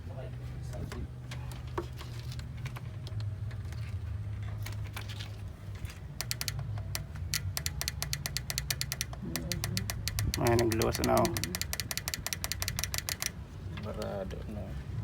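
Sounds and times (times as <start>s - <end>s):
steady low hum: 0.0s - 15.0s
rapid small clicks: 6.1s - 13.4s.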